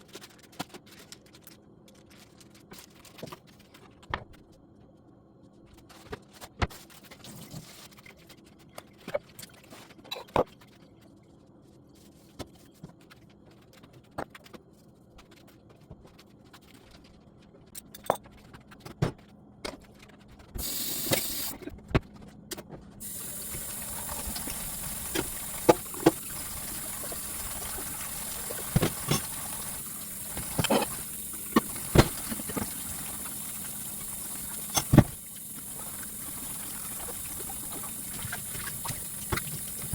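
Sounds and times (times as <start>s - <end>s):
running water: 20.6s - 21.6s, 23.0s - 39.9s.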